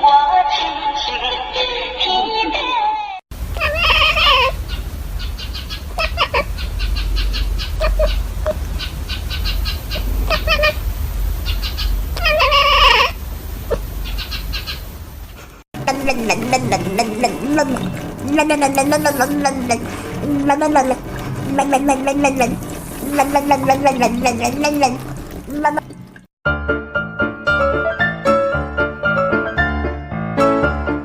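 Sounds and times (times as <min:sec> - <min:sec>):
cat meowing: 0:03.6 - 0:04.6, 0:12.2 - 0:13.2
steady low rumble: 0:04.5 - 0:12.3.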